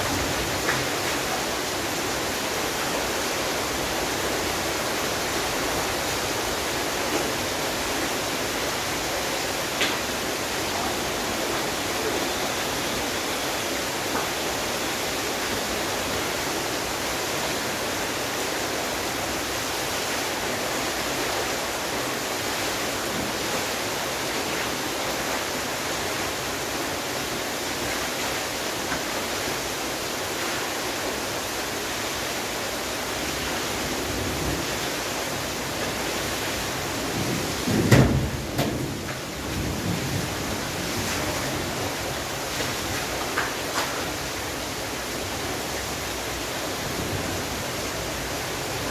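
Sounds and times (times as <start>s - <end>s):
steady rain falling: 0.0s - 48.9s
loud thump: 37.8s - 39.0s.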